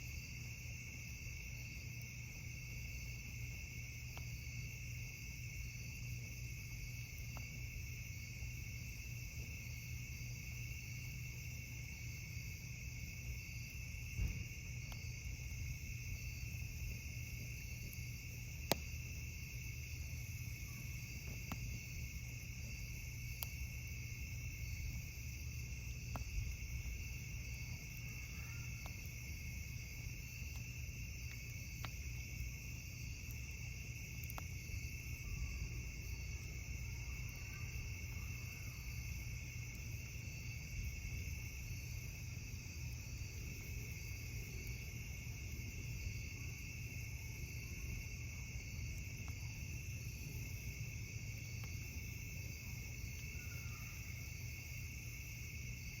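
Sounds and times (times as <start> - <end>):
crickets chirping: 0.0 - 56.0
campfire pops: 3.7 - 4.5, 6.9 - 9.9, 13.0 - 36.6, 38.9 - 53.3.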